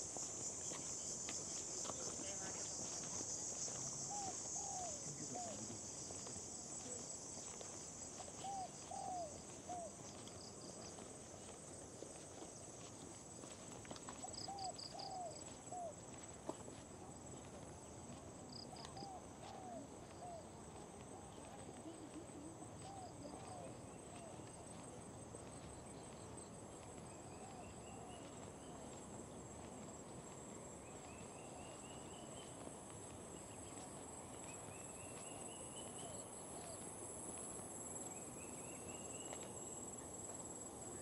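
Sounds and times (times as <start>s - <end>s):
insect chorus shrilling: 0.0s - 9.5s.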